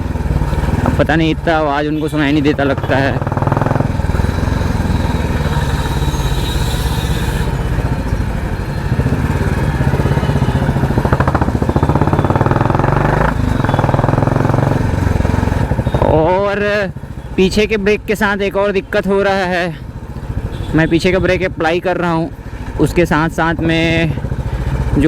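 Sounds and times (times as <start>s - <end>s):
motorcycle engine thumping: 0.0s - 16.4s.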